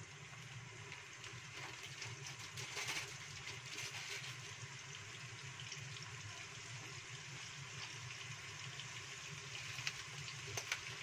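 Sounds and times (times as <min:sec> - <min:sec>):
paste sizzling in oil: 0:00.1 - 0:11.0.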